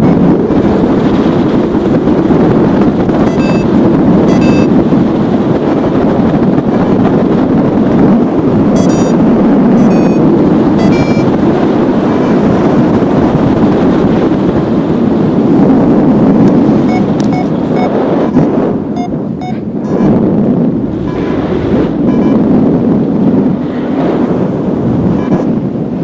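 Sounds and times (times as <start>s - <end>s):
wind buffeting microphone: 0.0s - 26.0s
high-pitched beeps: 3.2s - 3.7s, 4.3s - 4.7s, 8.8s - 9.2s, 9.8s - 10.2s, 10.8s - 11.3s, 16.9s - 17.9s, 19.0s - 20.2s, 22.0s - 22.4s.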